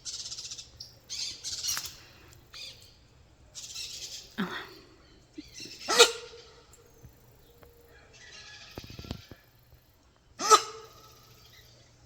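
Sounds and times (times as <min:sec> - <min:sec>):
capybara alarm bark: 0:05.8 - 0:06.5, 0:10.4 - 0:11.2.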